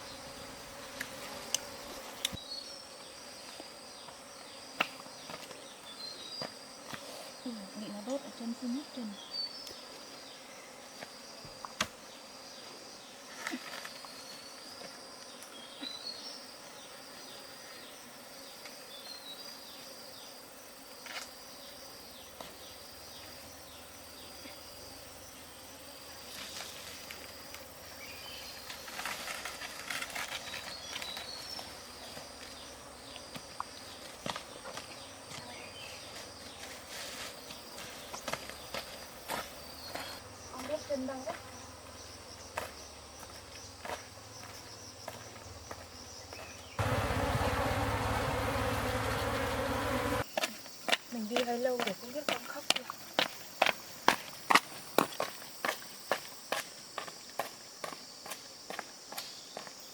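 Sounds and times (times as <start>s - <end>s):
insects trilling: 0.0s - 59.9s
leaves rustling: 26.0s - 32.6s, 35.8s - 40.2s, 46.8s - 50.2s.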